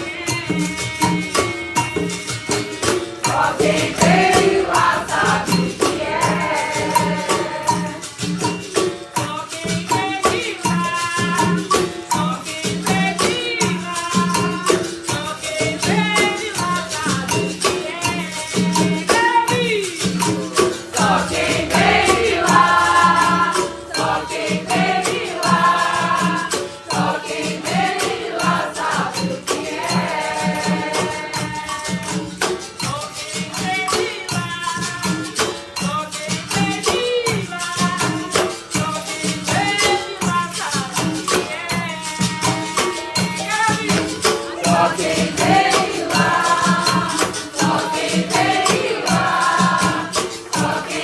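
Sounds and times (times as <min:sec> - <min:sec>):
voices singing: 0:00.0 - 0:08.3, 0:15.1 - 0:34.4, 0:41.4 - 0:51.0
berimbaus with rattles and tambourine: 0:00.0 - 0:51.0.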